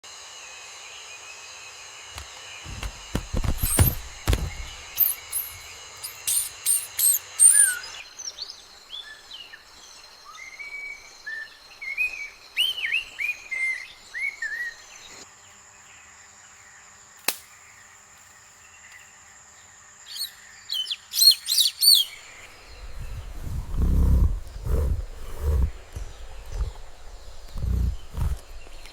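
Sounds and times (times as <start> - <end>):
birds chirping: 2.2 - 15.1, 20.1 - 28.9
low thumps: 2.7 - 5.7, 22.6 - 28.9.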